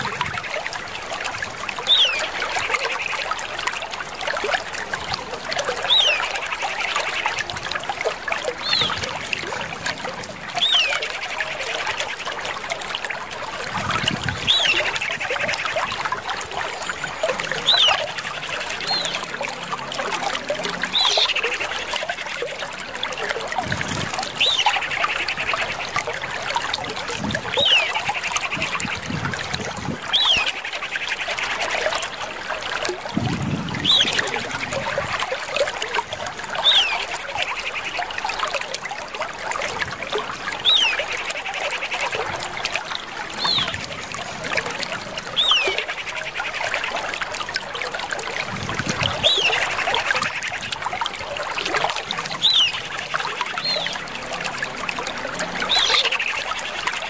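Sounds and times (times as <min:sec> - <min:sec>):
water trickling: 0:00.0 - 0:57.0
bird whistled call and chatter: 0:01.8 - 0:03.1, 0:05.7 - 0:07.5, 0:10.6 - 0:12.0, 0:14.3 - 0:15.9, 0:16.9 - 0:19.3, 0:23.8 - 0:25.9, 0:27.5 - 0:29.0, 0:30.1 - 0:31.6, 0:33.8 - 0:34.9, 0:36.6 - 0:37.9, 0:45.3 - 0:47.0, 0:49.0 - 0:50.8, 0:52.3 - 0:54.0, 0:55.6 - 0:57.0.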